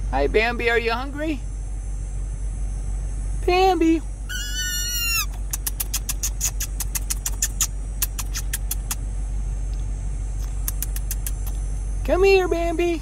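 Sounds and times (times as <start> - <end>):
sharp high clicks: 4.4 - 9.1, 10.4 - 11.6.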